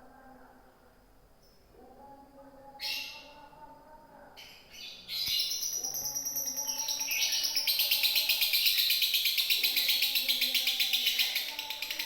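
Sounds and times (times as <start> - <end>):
lovebird chattering song: 4.8 - 12.0.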